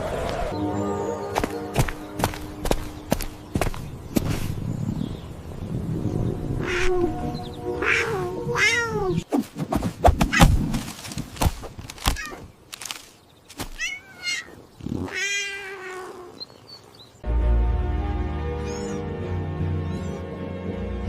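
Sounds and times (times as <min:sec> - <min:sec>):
soft background music: 0:00.5 - 0:03.7, 0:17.2 - 0:21.0
kitten meowing: 0:07.8 - 0:09.2, 0:13.8 - 0:16.4.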